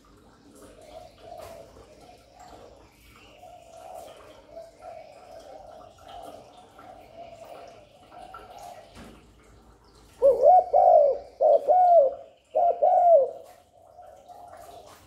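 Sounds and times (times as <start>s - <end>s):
faint dove cooing: 0.5s - 9.5s, 10.2s - 15.0s
dove cooing loudly: 0.6s - 2.8s, 10.2s - 15.0s.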